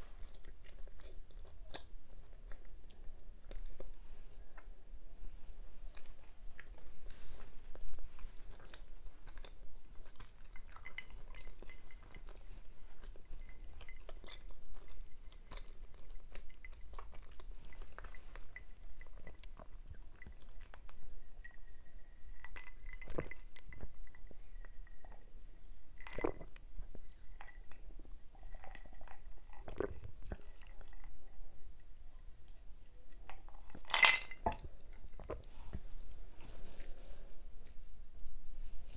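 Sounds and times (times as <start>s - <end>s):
person chewing: 5.9s - 21.0s.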